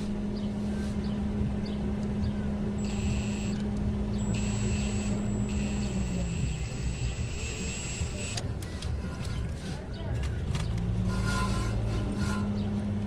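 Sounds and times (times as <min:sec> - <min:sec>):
high whine: 0:00.1 - 0:08.4
electric drill running: 0:02.8 - 0:03.6, 0:04.2 - 0:08.4.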